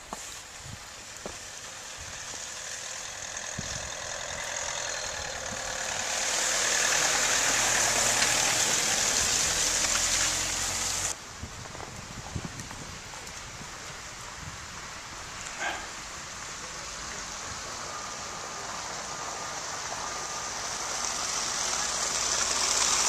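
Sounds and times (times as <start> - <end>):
steady hiss: 0.0 - 23.0
vehicle engine running: 0.9 - 11.1.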